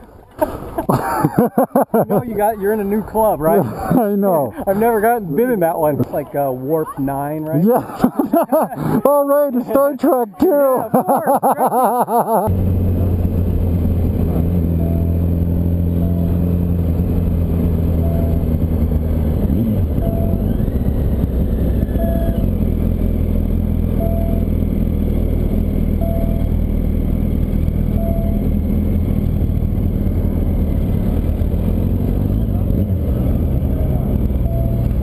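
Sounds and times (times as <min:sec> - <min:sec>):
motorcycle engine running: 0:12.5 - 0:35.0
faint short beep: 0:28.0 - 0:28.4, 0:34.4 - 0:34.9.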